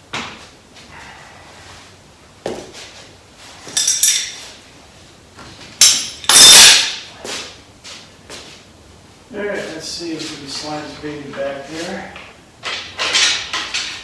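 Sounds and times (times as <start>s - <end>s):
metal tools clanking: 3.7s - 4.5s, 5.8s - 7.0s, 12.1s - 14.0s.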